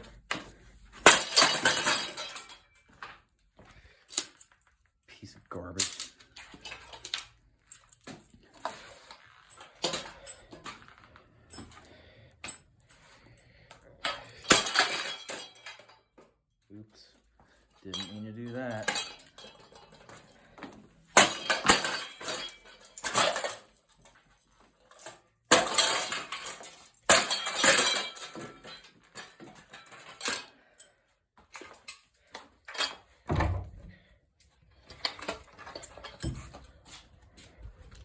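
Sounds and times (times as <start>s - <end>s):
metal and plastic crashing: 0.9s - 2.7s, 14.1s - 16.0s, 17.9s - 20.1s, 21.1s - 23.8s, 24.9s - 30.5s
heavy thud: 33.3s - 34.0s.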